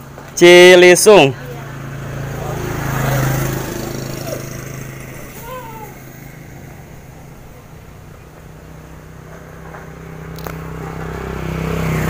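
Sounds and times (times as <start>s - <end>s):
motorcycle engine running: 1.3s - 12.0s
sharp click: 10.4s - 10.6s.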